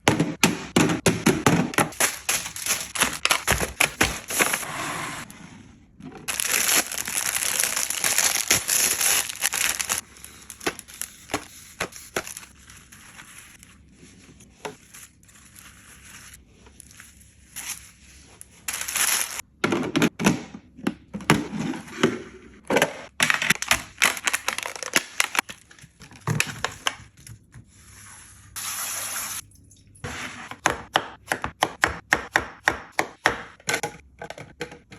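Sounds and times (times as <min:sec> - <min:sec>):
plastic crinkling and rustling: 0:01.9 - 0:04.7, 0:06.3 - 0:19.4, 0:23.4 - 0:27.5
plastic boxes clicking and knocking: 0:30.7 - 0:34.9.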